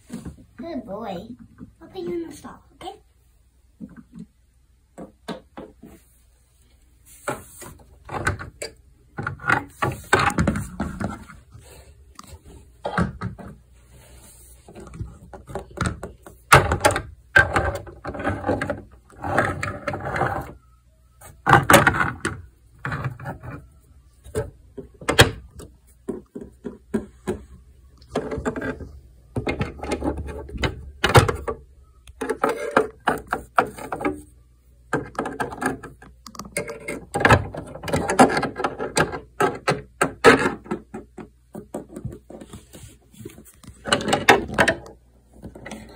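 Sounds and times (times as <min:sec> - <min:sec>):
plastic toys clicking and clattering: 0:14.7 - 0:20.6, 0:21.4 - 0:23.7, 0:28.0 - 0:34.3, 0:34.9 - 0:42.4, 0:43.5 - 0:45.9.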